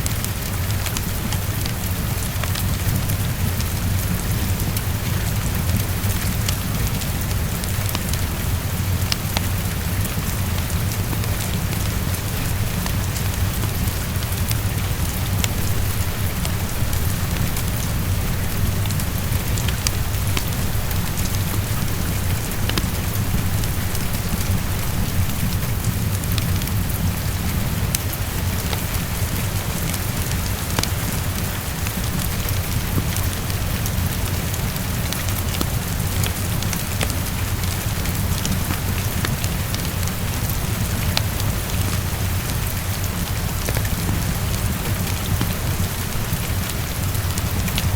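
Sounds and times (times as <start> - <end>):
heavy rain against a window: 0.0 - 47.9
raindrops ticking: 0.0 - 47.9.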